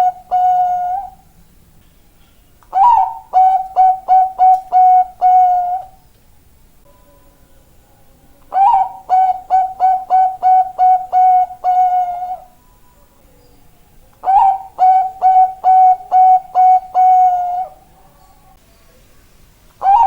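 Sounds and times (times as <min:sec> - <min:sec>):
dove cooing: 0:00.0 - 0:01.3, 0:02.7 - 0:06.0, 0:08.4 - 0:12.6, 0:14.2 - 0:18.6, 0:19.8 - 0:20.0.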